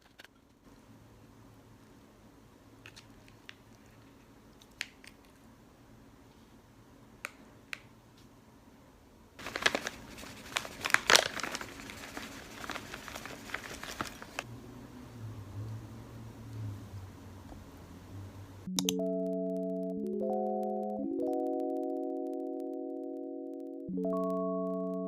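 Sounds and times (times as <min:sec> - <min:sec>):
crinkling and rustling: 0:00.0 - 0:00.6, 0:09.4 - 0:14.5.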